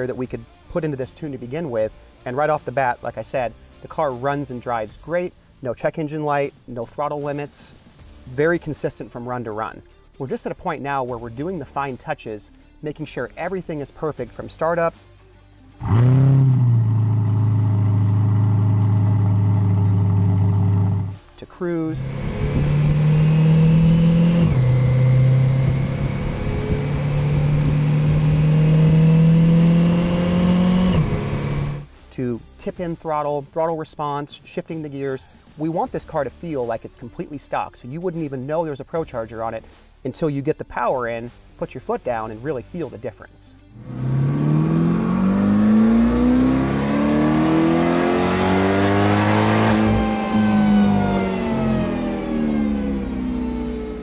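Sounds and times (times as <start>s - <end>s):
car engine revving on dyno: 15.8s - 21.2s, 21.9s - 31.9s, 43.8s - 54.0s
supercharger whine: 15.8s - 21.2s, 21.9s - 31.9s, 43.8s - 54.0s.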